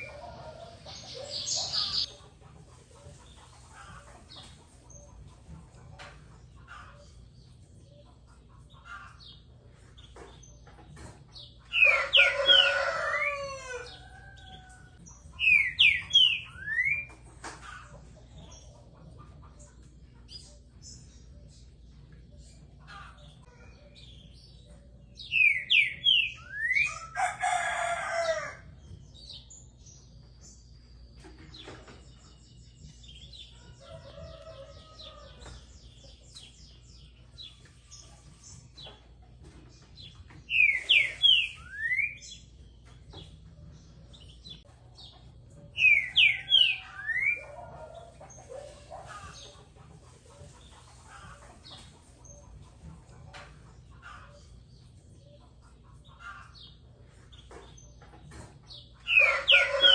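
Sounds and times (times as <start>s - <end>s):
faint bird chirps: 0.0s - 2.1s.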